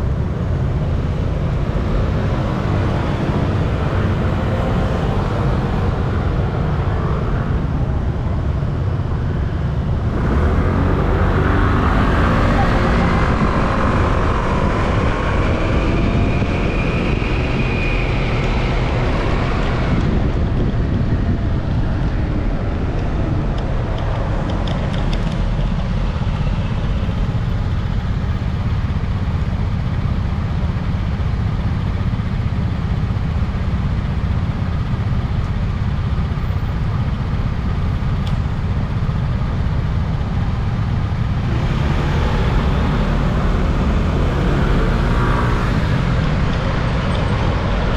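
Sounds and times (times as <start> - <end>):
passing traffic: 0.0 - 47.9
road noise: 0.0 - 47.9
wind buffeting microphone: 10.0 - 27.1.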